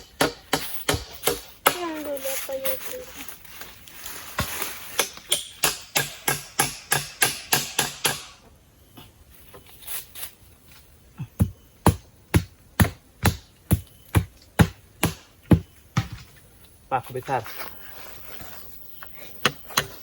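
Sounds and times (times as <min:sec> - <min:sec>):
hammer driving nails: 0:00.0 - 0:01.8, 0:05.0 - 0:08.4.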